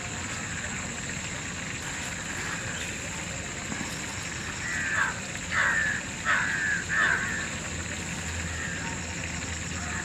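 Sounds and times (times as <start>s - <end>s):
outdoor background hiss: 0.0s - 10.0s
harsh bird calls: 4.6s - 7.6s.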